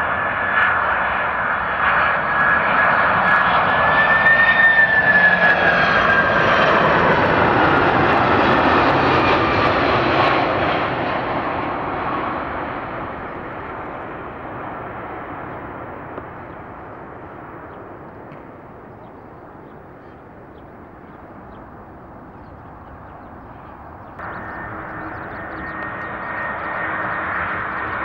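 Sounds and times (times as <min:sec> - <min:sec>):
jet engines roaring: 0:00.0 - 0:28.0
high fan whine: 0:21.7 - 0:28.0.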